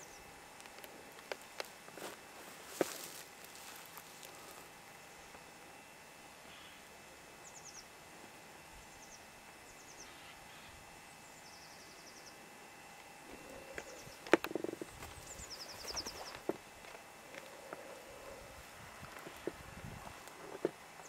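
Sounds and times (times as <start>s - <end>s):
songbird calling: 6.4s - 7.9s, 8.8s - 12.5s, 13.3s - 16.6s.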